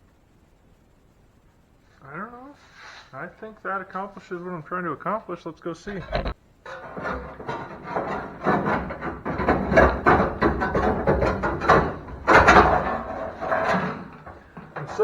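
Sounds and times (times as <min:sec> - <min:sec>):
sheet metal clattering and scraping: 0:05.9 - 0:15.0.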